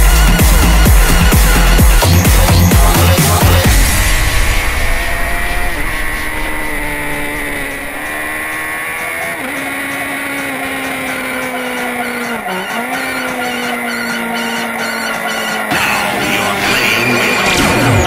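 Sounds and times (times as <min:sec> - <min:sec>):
motorcycle engine at speed: 0:00.0 - 0:18.0
wind rush: 0:03.6 - 0:08.8.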